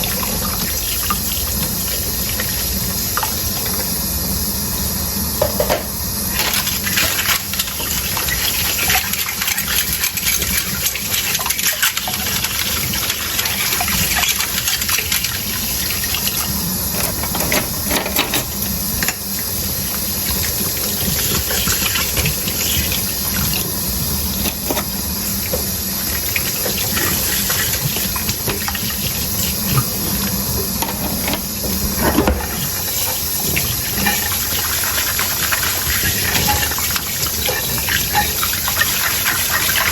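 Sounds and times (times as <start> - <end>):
tap water running into sink: 0.0 - 4.0, 5.4 - 39.9
crockery and utensils clinking: 33.5 - 34.6, 35.9 - 39.9.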